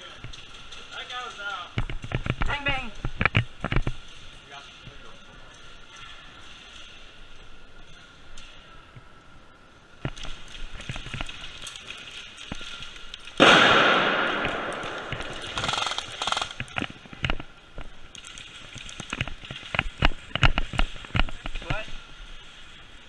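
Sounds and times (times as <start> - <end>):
sudden loud burst: 13.4 - 15.1
airsoft gunfire snaps: 13.4 - 16.6.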